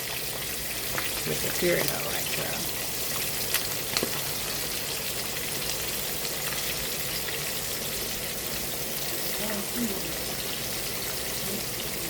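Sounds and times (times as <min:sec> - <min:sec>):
sharp frying pops: 0:00.0 - 0:09.1
chicken sizzling in lard: 0:00.0 - 0:12.0.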